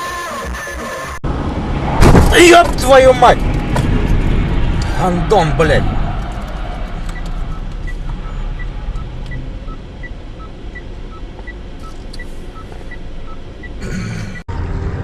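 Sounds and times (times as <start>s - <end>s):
car engine and road rumble: 0.5s - 15.0s
two-tone electronic beep: 7.5s - 13.8s.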